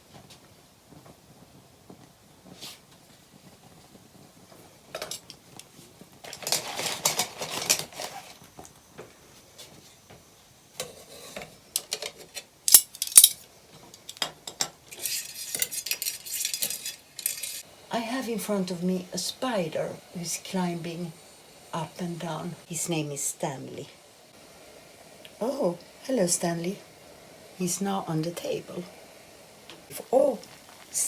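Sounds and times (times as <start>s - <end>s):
steady hiss: 0.0s - 31.0s
utensils scraping and knocking a pot: 6.2s - 8.4s, 10.8s - 17.6s.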